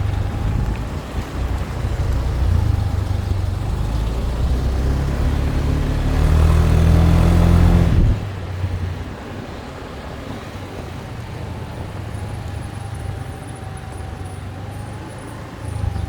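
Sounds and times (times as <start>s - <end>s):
motorbike engine running: 0.0s - 8.2s
road and wind noise: 0.0s - 16.0s.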